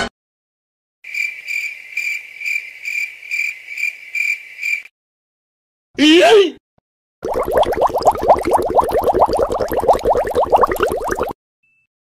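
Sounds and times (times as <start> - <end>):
crickets chirping: 1.1 - 4.9.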